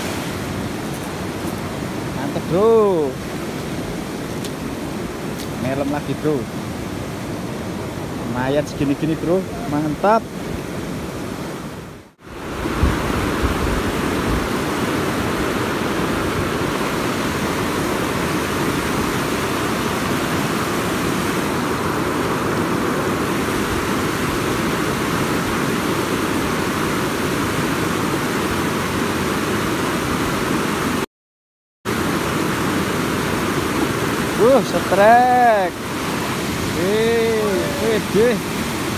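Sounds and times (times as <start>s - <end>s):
fast-flowing river rushing: 0.0s - 31.0s, 31.9s - 38.9s.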